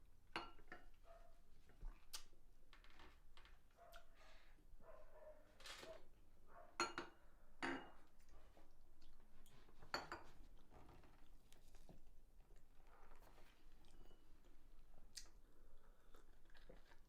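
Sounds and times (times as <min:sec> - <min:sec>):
cutlery and dishes clinking: 0:00.4 - 0:00.9, 0:06.8 - 0:08.1, 0:09.8 - 0:10.4.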